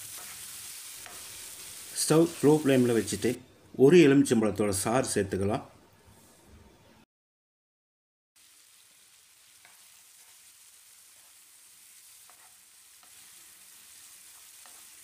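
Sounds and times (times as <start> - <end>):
wooden spatula scraping a pan: 0.0 - 1.4, 12.1 - 15.0
faint sizzling of vegetables: 0.0 - 6.6, 8.4 - 15.0.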